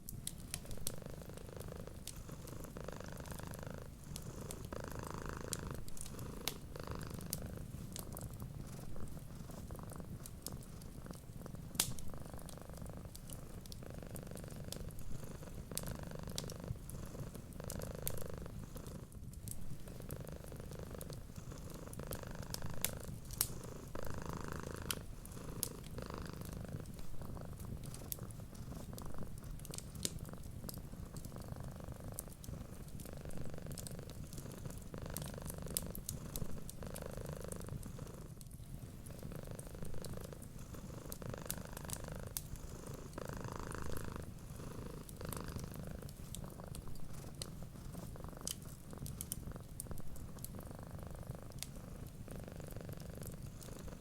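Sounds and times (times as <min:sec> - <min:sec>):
cat purring: 0:00.0 - 0:54.0
wood fire crackling: 0:00.0 - 0:54.0.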